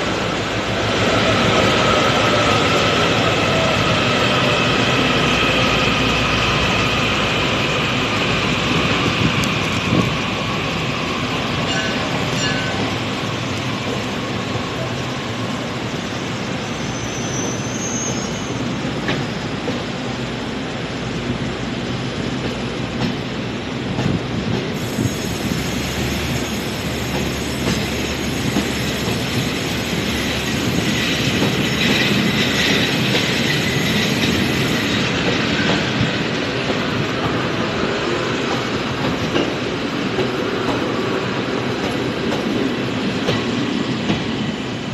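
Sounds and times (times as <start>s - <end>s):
freight train rumble: 0.0s - 44.9s
high wheel squeal: 16.5s - 18.7s.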